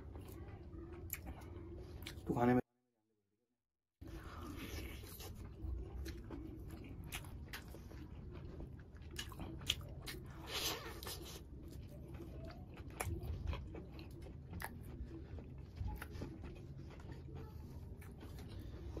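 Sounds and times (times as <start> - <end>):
chewing with wet mouth sounds: 0.0 - 2.3, 4.0 - 19.0.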